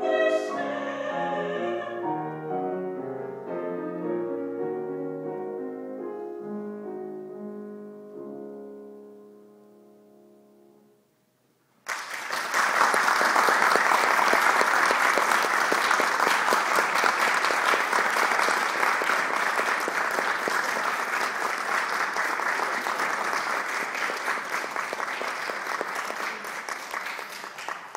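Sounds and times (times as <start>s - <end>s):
audience applause: 11.8s - 27.9s.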